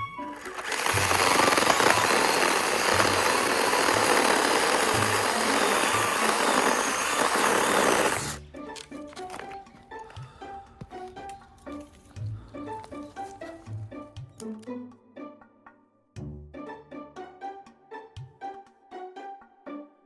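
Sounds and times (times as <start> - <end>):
power saw cutting log: 0.0 - 10.2
faint background music: 8.3 - 20.0.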